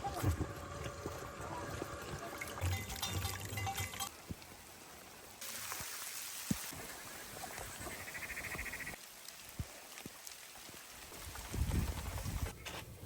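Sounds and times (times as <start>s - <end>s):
water dripping: 2.3s - 11.5s
rain hissing: 4.1s - 12.2s.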